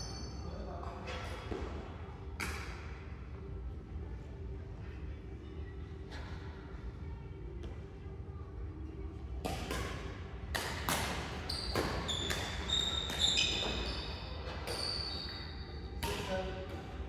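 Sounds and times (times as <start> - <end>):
rackets hitting shuttlecock: 2.4 - 2.9, 9.4 - 15.4, 16.0 - 17.0
shoes squeaking on court floor: 11.4 - 16.2.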